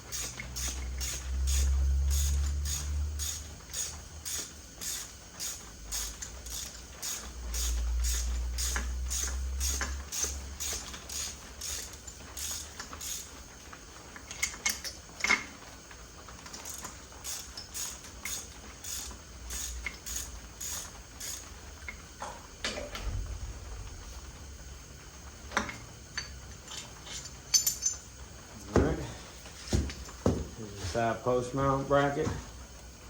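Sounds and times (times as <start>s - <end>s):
ratchet wrench clicking: 0.0s - 13.3s, 16.6s - 22.0s
low hum: 22.9s - 25.8s.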